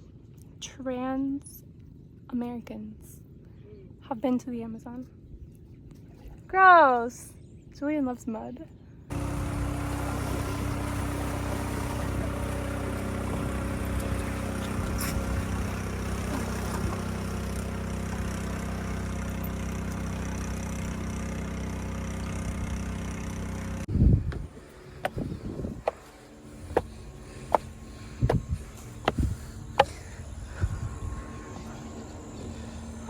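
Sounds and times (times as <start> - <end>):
engine humming steadily: 9.1 - 33.0.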